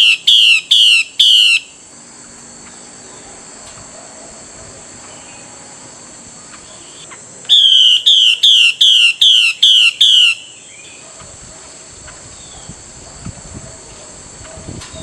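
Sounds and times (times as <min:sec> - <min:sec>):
bird calling downward notes: 0:00.0 - 0:01.8, 0:06.6 - 0:11.0
faint high-pitched hum: 0:00.0 - 0:15.0.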